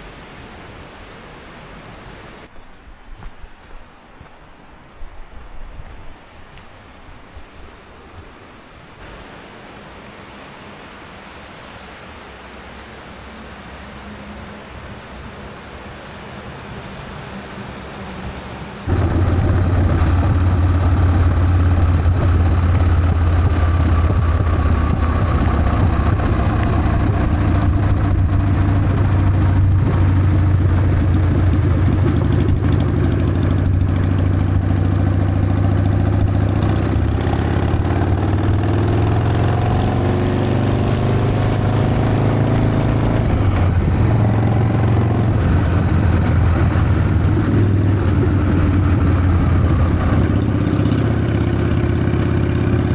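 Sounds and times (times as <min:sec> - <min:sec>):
motorcycle engine accelerating: 0:18.9 - 0:52.9.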